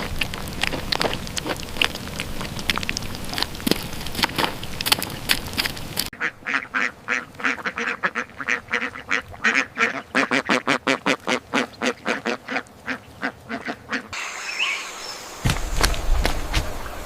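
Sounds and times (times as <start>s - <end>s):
crackling noise: 0.0s - 6.2s
poultry calling: 6.2s - 15.2s.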